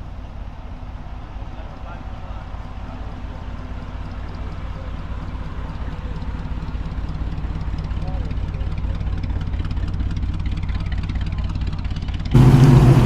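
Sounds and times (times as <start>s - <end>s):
car engine running: 2.6s - 13.0s.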